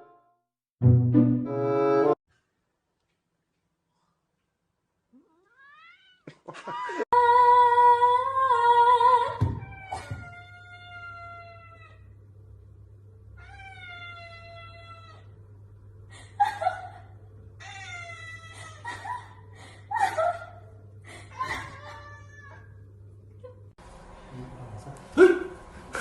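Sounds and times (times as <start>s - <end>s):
cat meowing: 5.2s - 6.3s, 9.6s - 12.1s, 13.4s - 15.3s, 17.6s - 18.8s, 21.7s - 22.7s.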